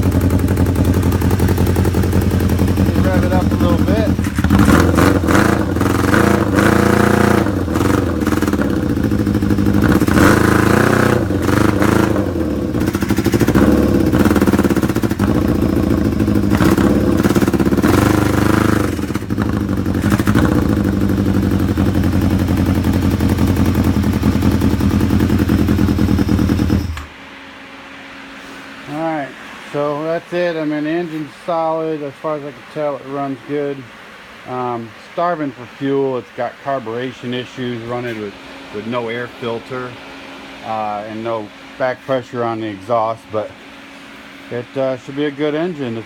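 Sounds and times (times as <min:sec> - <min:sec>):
motorcycle engine revving and idling: 0:00.0 - 0:28.0, 0:36.9 - 0:43.9.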